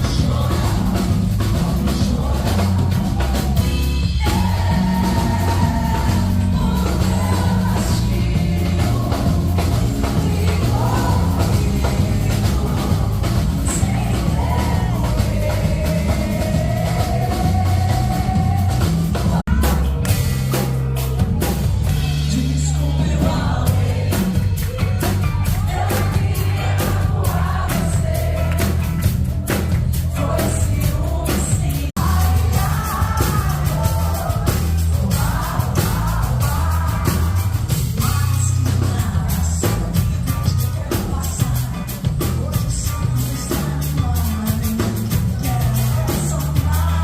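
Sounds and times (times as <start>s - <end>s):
person singing: 0.0s - 20.2s, 21.8s - 47.0s
live band drums and bass: 0.0s - 47.0s.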